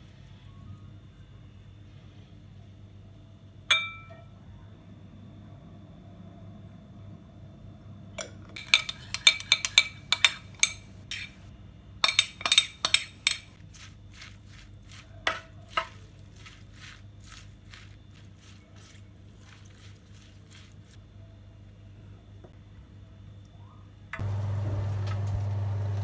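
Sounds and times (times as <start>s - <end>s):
cutlery and dishes clinking: 8.2s - 11.4s, 12.0s - 13.6s.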